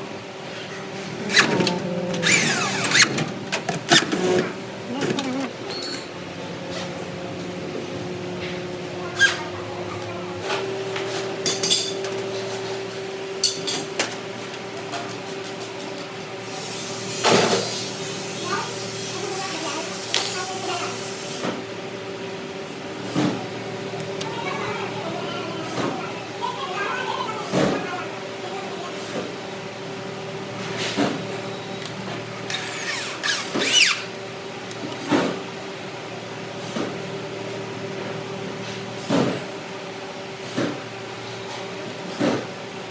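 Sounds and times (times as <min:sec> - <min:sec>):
steady machine hum: 0:00.0 - 0:13.4.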